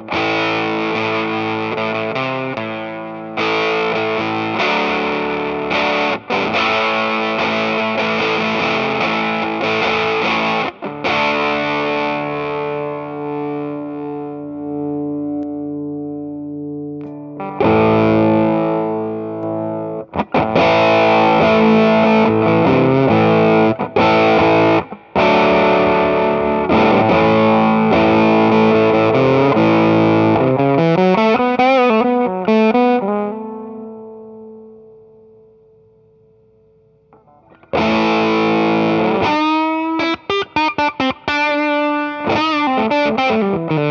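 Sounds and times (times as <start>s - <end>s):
fuzzed electric guitar: 0.0s - 43.9s.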